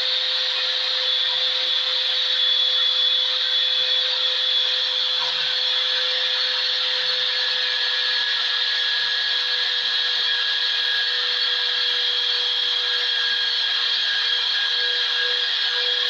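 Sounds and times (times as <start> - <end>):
electric grinder whining on steel: 0.0 - 16.0.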